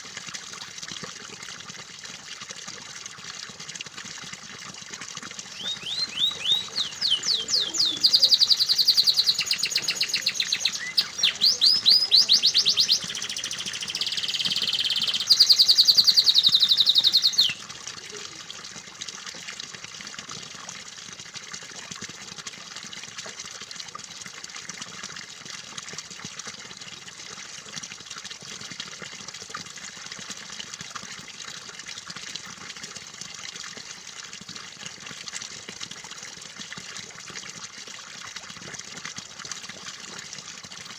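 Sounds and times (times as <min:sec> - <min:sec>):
trickle of running water: 0:00.0 - 0:40.9
canary singing trills: 0:05.5 - 0:17.6.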